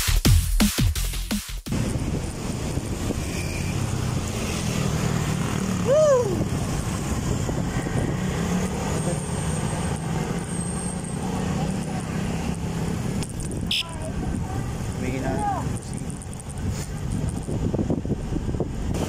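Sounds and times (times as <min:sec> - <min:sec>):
low vehicle hum: 0:01.7 - 0:19.0
road and wind noise: 0:01.7 - 0:19.0.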